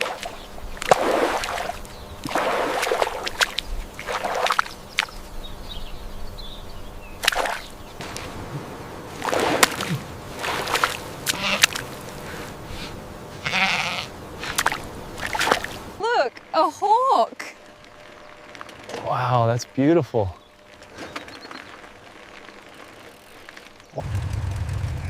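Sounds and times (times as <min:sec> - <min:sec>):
water splashing and sloshing: 0:00.0 - 0:05.4, 0:07.2 - 0:16.6.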